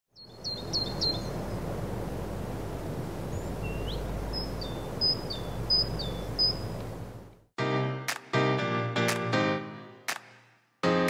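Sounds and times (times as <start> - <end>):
outdoor background noise: 0.1 - 7.5
bird calling: 0.2 - 1.8, 3.2 - 7.3.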